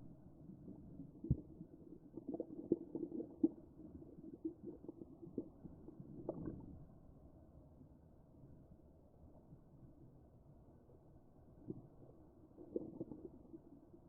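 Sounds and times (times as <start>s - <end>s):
muffled underwater rumble: 0.0s - 14.0s.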